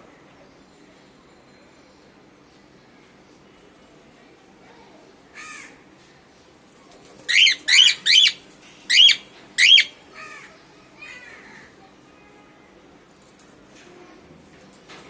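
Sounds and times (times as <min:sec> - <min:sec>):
cockatiel calling: 0:07.3 - 0:09.9.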